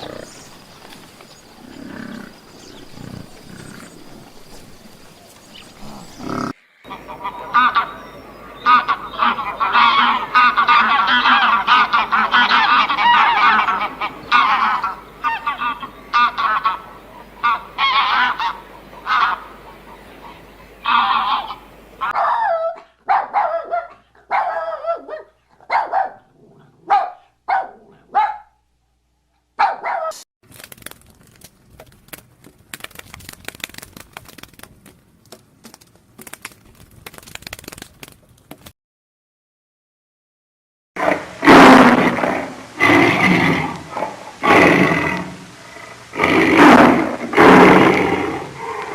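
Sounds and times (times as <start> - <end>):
flock of birds calling: 0.0 - 22.2
faint crackle: 30.4 - 38.7.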